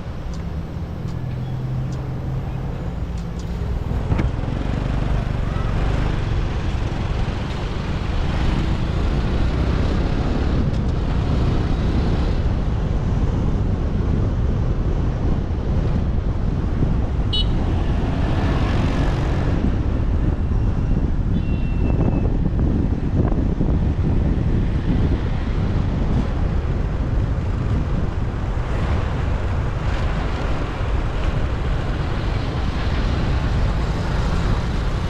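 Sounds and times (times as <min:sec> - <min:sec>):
traffic rumble from motorbike: 0:00.0 - 0:35.0.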